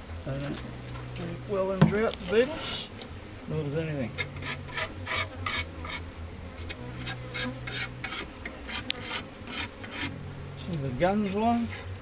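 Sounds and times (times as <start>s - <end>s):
metal tool scraping wood: 4.1s - 10.2s.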